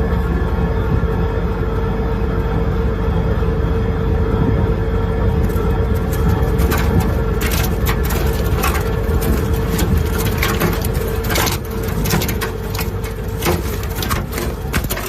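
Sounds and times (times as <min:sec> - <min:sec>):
wood shredder droning: 0:04.4 - 0:15.0
wood cracking: 0:05.5 - 0:15.0.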